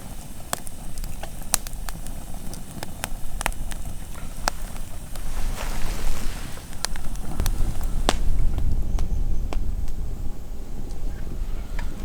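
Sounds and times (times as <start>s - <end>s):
campfire crackling and popping: 0.0s - 12.0s
low rumble: 3.1s - 12.0s.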